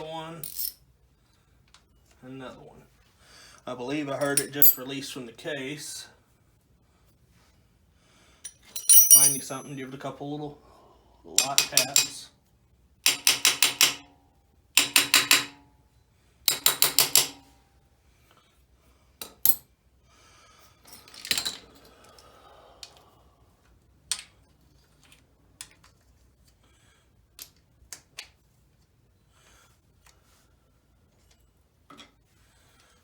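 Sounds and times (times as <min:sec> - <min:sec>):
short metal rattle: 0:08.5 - 0:09.6.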